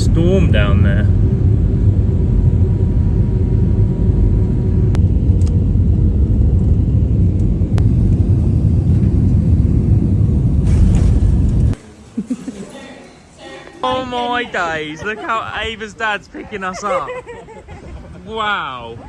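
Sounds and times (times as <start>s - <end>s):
vehicle driving rumble: 0.0s - 11.8s.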